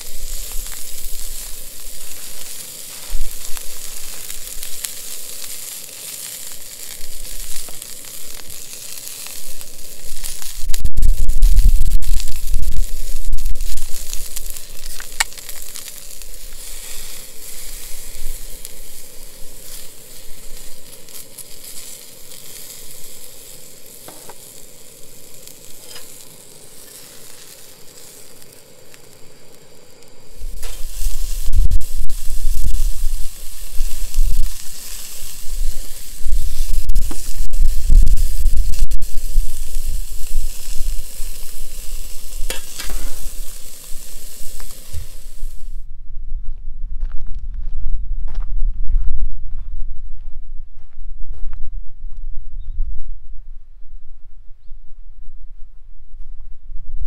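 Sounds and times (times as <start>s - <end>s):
food sizzling in pan: 0.0s - 45.9s
low rumble: 30.2s - 57.0s.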